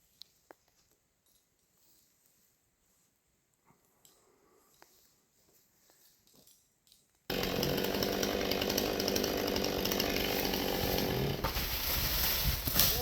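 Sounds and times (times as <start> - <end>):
chainsaw running: 7.3 - 13.0.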